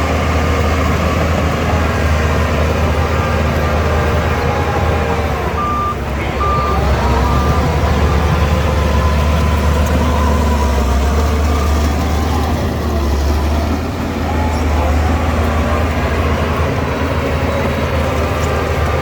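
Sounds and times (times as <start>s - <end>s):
bulldozer diesel engine running: 0.0s - 19.0s
reversing alarm beeping: 5.0s - 10.8s.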